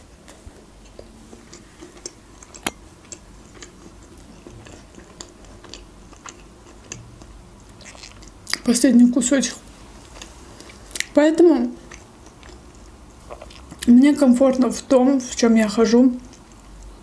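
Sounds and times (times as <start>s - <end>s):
chewing soft cake: 0.1s - 8.8s, 9.6s - 14.9s, 16.1s - 17.0s
wet mouth clicks and smacks: 7.7s - 8.6s.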